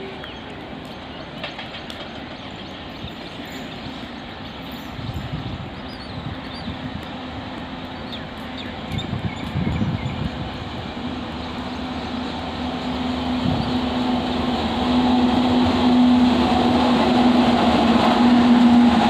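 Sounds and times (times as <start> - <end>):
train approaching rumble: 0.0 - 19.0.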